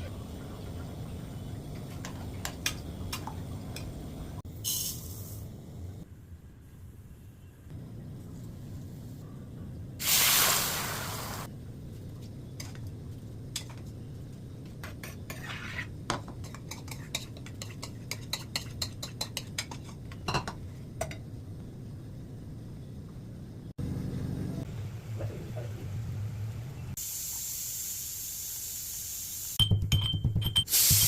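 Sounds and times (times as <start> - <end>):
food sizzling in hot oil: 10.0 - 11.5
spoon scraping a pan: 14.8 - 20.6.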